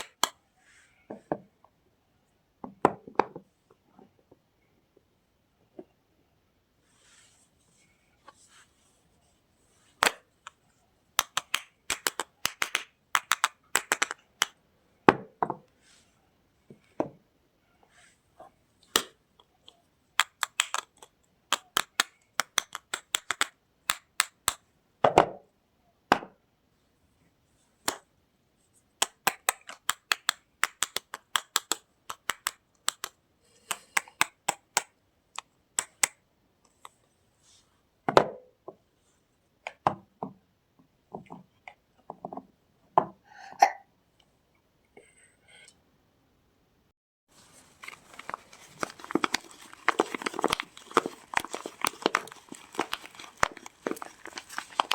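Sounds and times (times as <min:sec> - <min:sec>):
packaging cracking and snapping: 0:20.2 - 0:24.6, 0:47.4 - 0:54.9.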